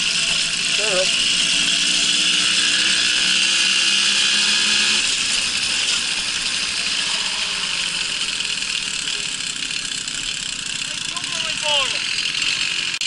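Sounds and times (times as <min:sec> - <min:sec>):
moped engine running: 0:00.0 - 0:13.0.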